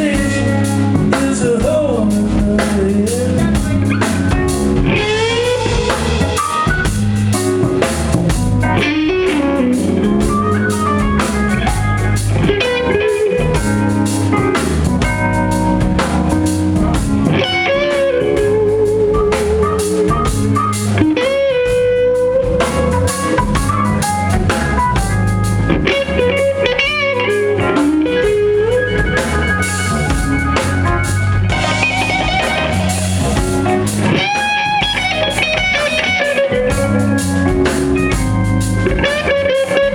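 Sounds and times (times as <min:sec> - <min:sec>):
bass: 0:00.0 - 0:39.9
drums: 0:00.0 - 0:39.9
electric guitar solo: 0:04.0 - 0:39.9.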